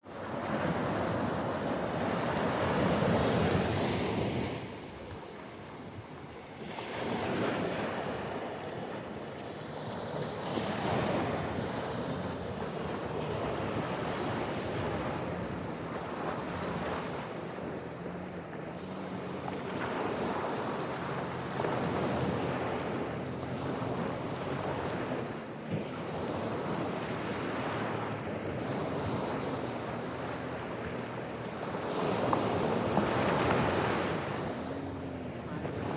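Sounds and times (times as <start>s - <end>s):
surf breaking on shore: 10.0s - 35.9s.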